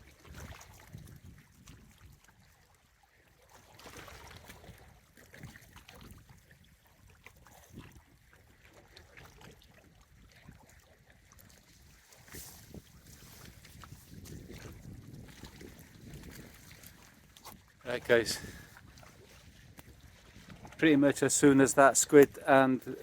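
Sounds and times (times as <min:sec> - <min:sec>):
wind on microphone: 0:00.0 - 0:02.5, 0:11.4 - 0:21.0.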